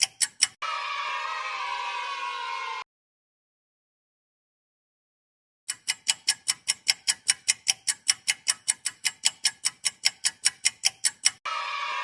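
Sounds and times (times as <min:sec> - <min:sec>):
clock ticking: 0:00.0 - 0:00.6, 0:05.7 - 0:11.5.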